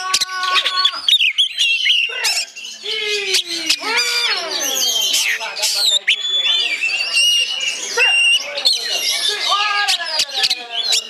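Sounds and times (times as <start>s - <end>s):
songbird singing: 0.0s - 11.0s.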